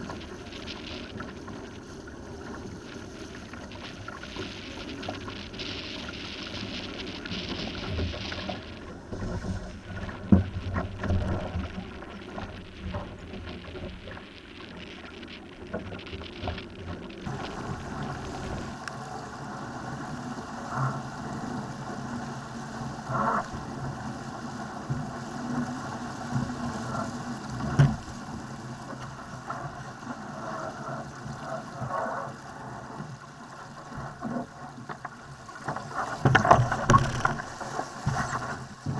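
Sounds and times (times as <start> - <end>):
wind on microphone: 0.0 - 24.1
water rushing along hull: 0.0 - 38.9.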